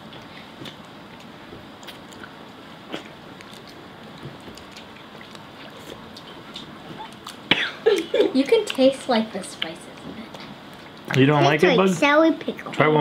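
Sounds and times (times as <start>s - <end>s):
quiet chewing with mouth clicks: 0.1s - 8.9s.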